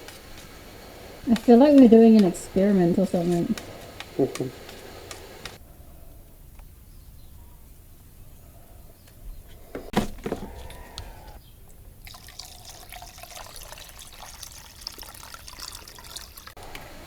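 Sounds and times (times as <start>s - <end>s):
liquid pouring into cup: 12.0s - 16.6s.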